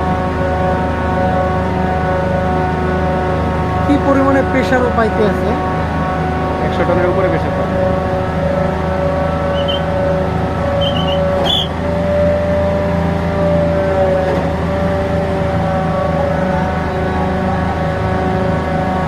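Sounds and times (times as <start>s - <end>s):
hydraulic machine whining hum: 7.6s - 19.0s
short high squeaks: 9.5s - 10.0s, 10.8s - 11.8s.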